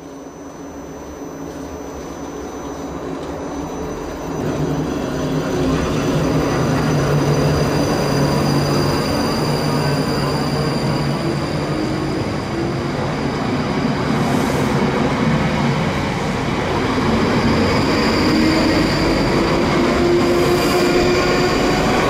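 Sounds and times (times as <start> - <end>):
train wheels running on rails: 0.0 - 22.0.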